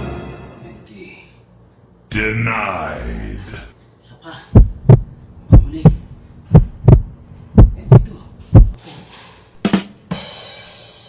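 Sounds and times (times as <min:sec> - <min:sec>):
low heavy thumps: 0:04.6 - 0:08.8.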